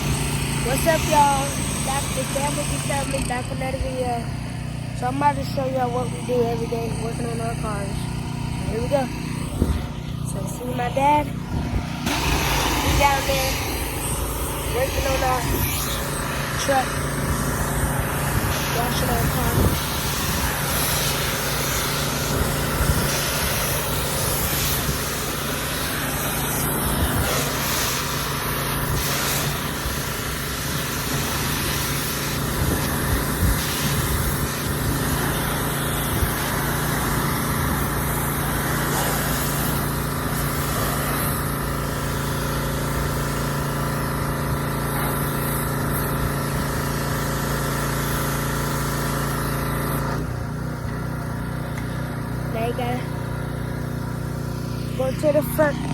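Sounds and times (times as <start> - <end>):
mechanical hum: 0.0 - 55.9
water spray hissing against truck: 11.9 - 55.9.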